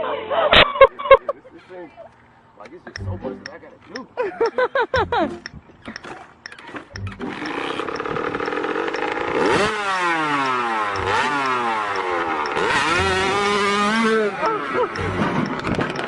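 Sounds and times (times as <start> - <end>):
motorcycle engine revving: 6.9 - 16.0.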